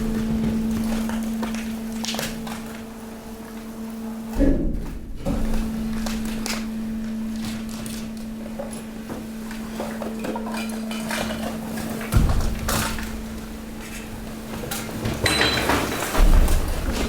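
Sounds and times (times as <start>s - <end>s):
hydraulic pump humming: 0.0s - 17.0s.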